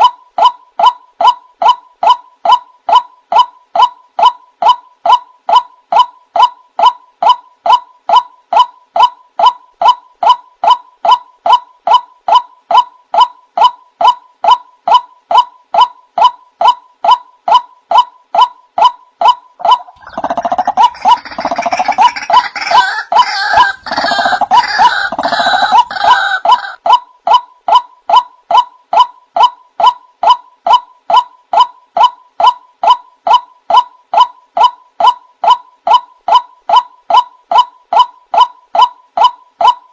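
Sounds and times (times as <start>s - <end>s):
bird repeated wak calls: 0.0s - 39.9s
harsh bird chattering: 19.6s - 26.8s.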